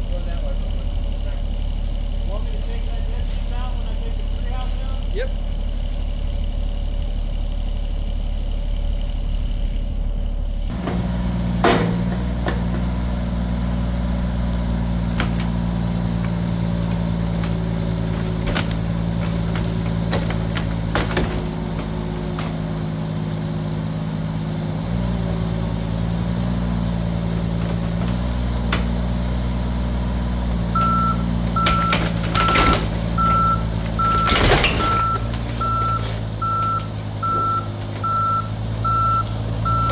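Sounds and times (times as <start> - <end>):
excavator diesel engine under load: 0.0 - 39.9
loud knocks and crashes: 10.7 - 13.3, 14.8 - 23.0, 27.3 - 29.2, 30.6 - 36.7
knocks and cracks: 15.0 - 22.8, 27.5 - 29.1, 30.8 - 36.0
travel alarm beeping: 30.8 - 39.9.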